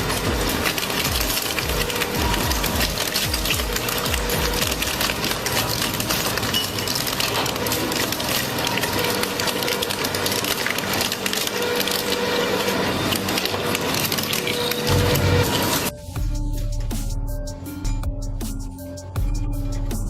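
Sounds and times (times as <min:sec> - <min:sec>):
machinery crushing material: 0:00.0 - 0:16.0.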